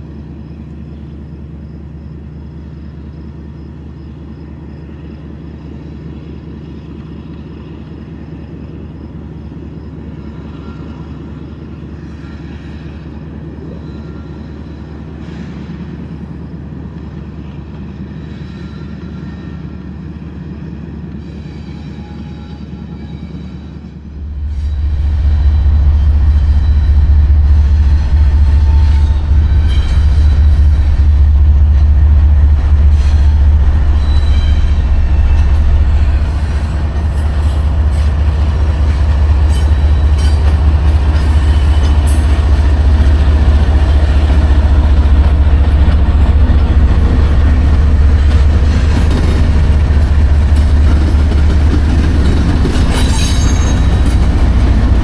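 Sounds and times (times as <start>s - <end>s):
freight train wheels rumbling on rail: 0.0s - 55.0s
high wheel squeals: 32.6s - 55.0s.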